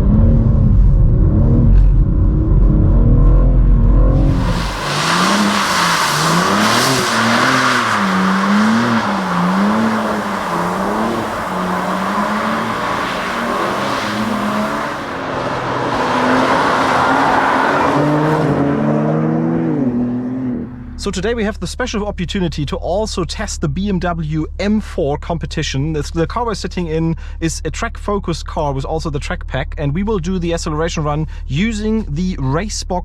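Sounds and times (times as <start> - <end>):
car engine revving under load: 0.0 - 21.1.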